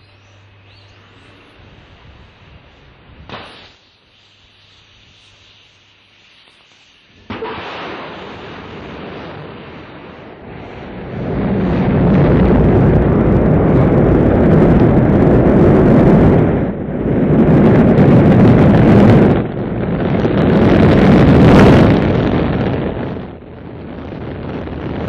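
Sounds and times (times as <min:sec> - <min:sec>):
rocket launch roar: 0:03.2 - 0:03.8, 0:07.2 - 0:25.0.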